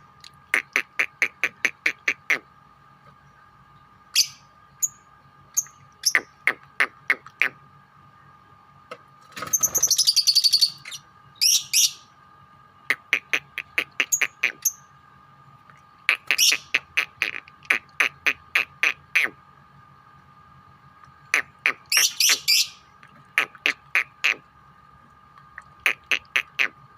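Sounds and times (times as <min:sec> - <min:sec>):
faint steady hum: 0:00.0 - 0:26.9
lovebirds shrill chirps: 0:09.4 - 0:12.0, 0:21.9 - 0:22.8
rattling bird chatter: 0:09.4 - 0:12.0.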